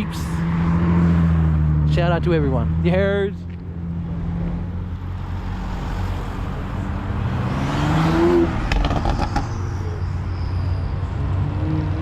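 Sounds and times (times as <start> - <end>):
car engines running: 0.0 - 12.0
car accelerating past: 3.8 - 9.8.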